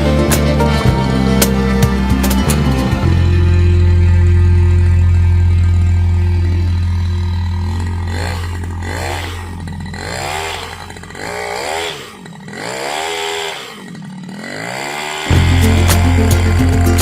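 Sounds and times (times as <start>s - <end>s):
two-stroke engine revving: 0.0s - 17.0s.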